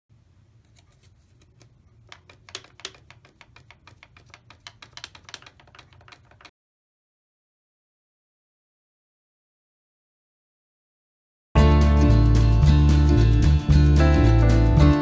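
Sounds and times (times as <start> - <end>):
paper crackling: 0.7 - 6.5.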